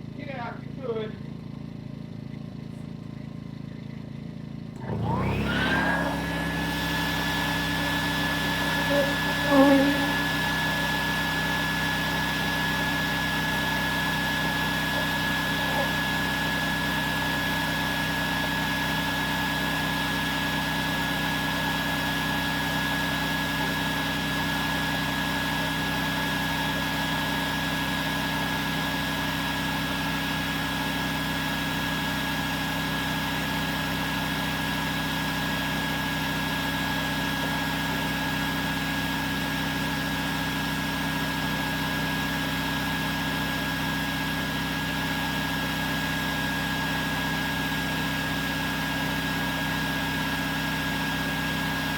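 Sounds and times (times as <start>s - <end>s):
generator droning: 4.7s - 25.5s
vacuum high whine: 4.8s - 19.5s.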